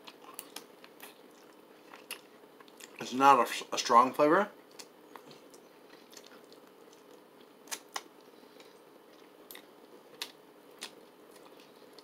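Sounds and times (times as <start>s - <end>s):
faint steady hum: 0.0s - 12.0s
crunchy chewing: 4.7s - 12.0s.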